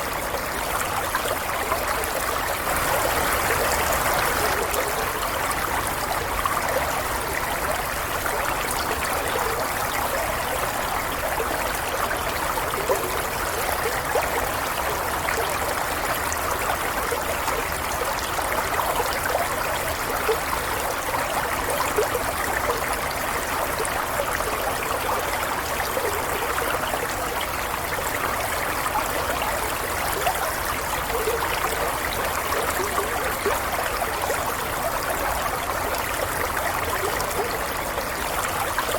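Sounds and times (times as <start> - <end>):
stream running over stones: 0.0 - 38.9.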